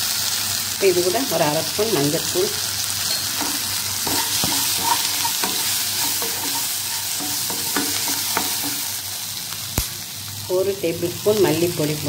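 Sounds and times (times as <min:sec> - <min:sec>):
onions sizzling in oil: 0:00.0 - 0:12.0
wooden spatula scraping a pan: 0:03.1 - 0:08.9.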